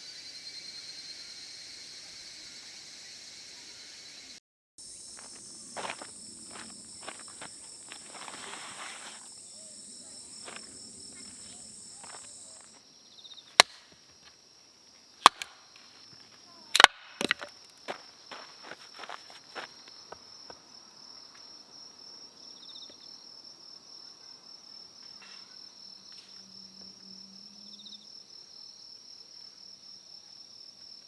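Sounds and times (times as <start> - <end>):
insects chirring: 0.0 - 31.0
wood breaking cracks: 15.2 - 15.5, 16.8 - 17.8.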